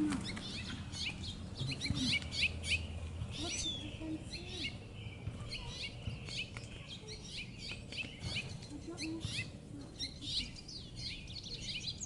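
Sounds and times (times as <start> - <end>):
small songbirds chirping: 0.0 - 12.0.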